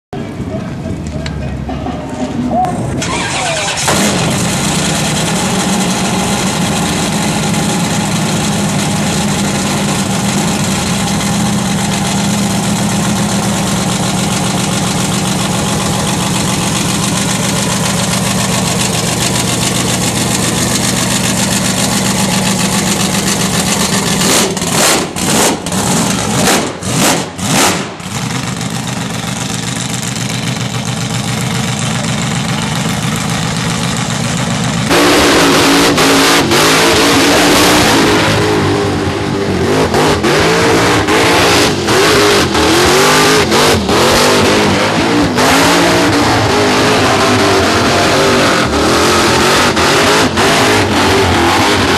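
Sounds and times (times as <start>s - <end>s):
engine revving high in burnout: 2.9s - 11.3s, 23.8s - 28.6s, 34.9s - 51.9s
engine idling with lumpy beat: 28.0s - 34.9s.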